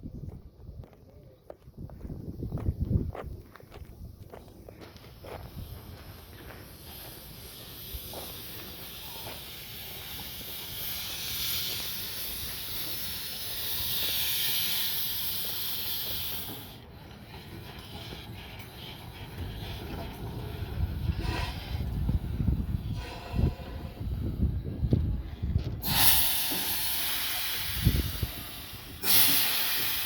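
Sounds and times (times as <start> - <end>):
steam locomotive hissing: 4.3 - 30.0.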